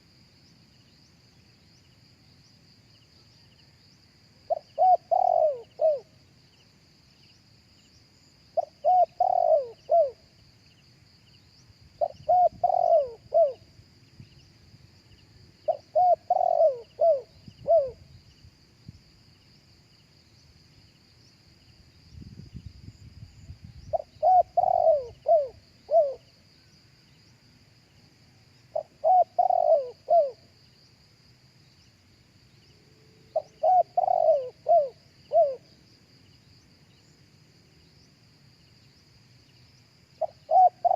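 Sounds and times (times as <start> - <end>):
dove cooing: 4.5 - 6.1, 8.6 - 10.2, 12.0 - 13.6, 15.7 - 18.0, 23.9 - 26.3, 28.7 - 30.4, 33.3 - 35.6, 40.2 - 40.9.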